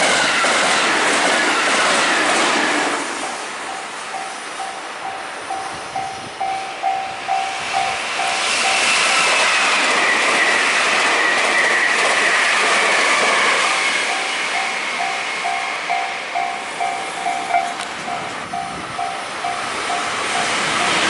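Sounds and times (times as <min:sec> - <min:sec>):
train passing: 0:00.0 - 0:21.0
crossing warning bell ringing: 0:03.2 - 0:09.3, 0:13.8 - 0:21.0
high tone falling in pitch: 0:14.1 - 0:20.5.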